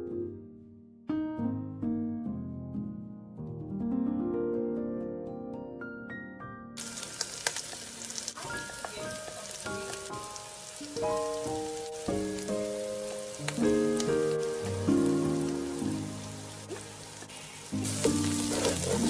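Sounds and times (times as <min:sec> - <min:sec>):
oil sizzling in a frying pan: 0:06.8 - 0:19.0.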